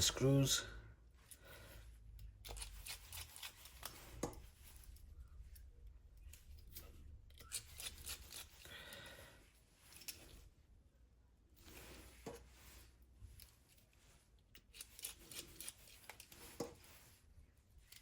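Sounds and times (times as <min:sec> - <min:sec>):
screwdriver clicks and scrapes: 0:02.2 - 0:05.6, 0:09.9 - 0:10.3, 0:13.3 - 0:17.1.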